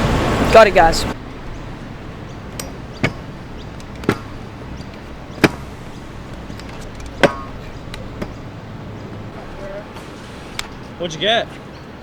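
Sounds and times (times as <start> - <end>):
scooter knocking on concrete: 1.2 - 9.2.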